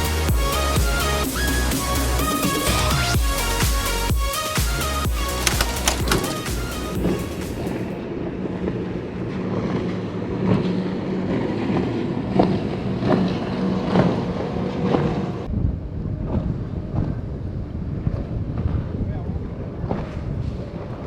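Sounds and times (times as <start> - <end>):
wind buffeting microphone: 5.5 - 21.0
boat engine running: 9.4 - 15.5.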